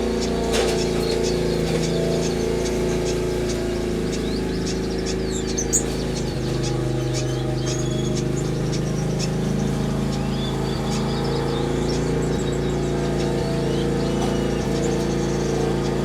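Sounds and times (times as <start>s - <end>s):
aviary birds chirping: 0.0s - 16.0s
low mechanical drone: 0.0s - 16.0s.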